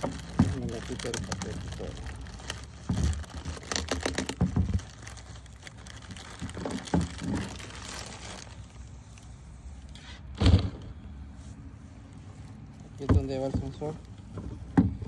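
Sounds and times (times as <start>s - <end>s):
paper crinkling and rustling: 0.0s - 10.4s
loud dull thump: 10.4s - 10.9s.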